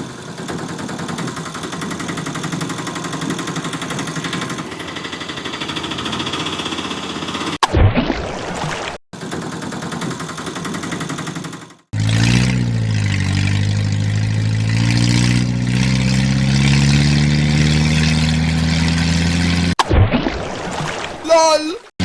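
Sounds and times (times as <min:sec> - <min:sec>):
deep engine drone revving: 0:00.0 - 0:07.6, 0:11.9 - 0:19.8
fast even engine rattle: 0:00.0 - 0:07.6, 0:09.2 - 0:19.8.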